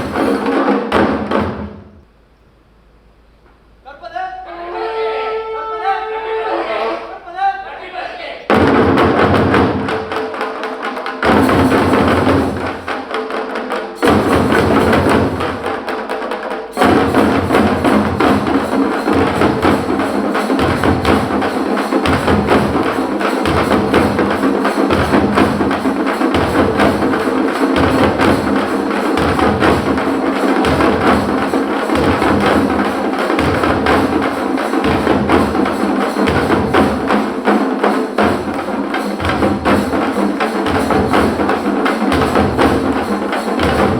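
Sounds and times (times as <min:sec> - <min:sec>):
frame drums beaten with sticks: 0:00.0 - 0:02.0, 0:08.4 - 0:43.9
deep drum pulse: 0:16.8 - 0:37.2.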